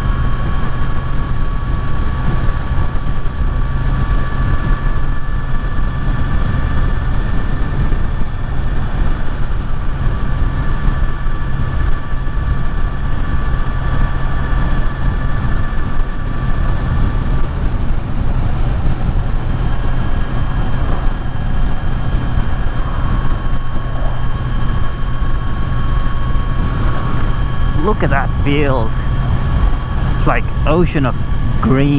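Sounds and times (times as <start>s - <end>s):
low wind rumble: 0.0s - 31.9s
road rumble: 0.0s - 31.9s
motorcycle engine cruising: 12.2s - 31.9s.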